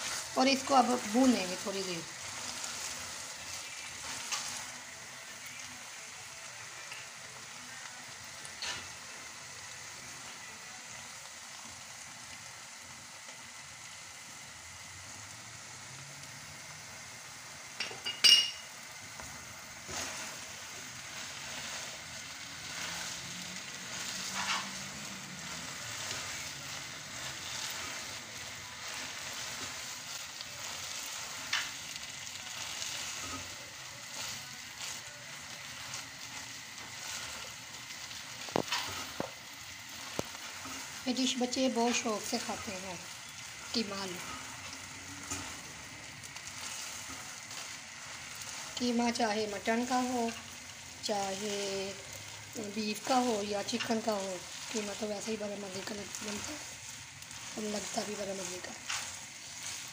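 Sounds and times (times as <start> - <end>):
meat and potatoes sizzling: 0.0 - 59.9
spatula scraping a pan: 19.8 - 31.8, 32.5 - 35.0, 35.6 - 45.8, 51.2 - 59.9.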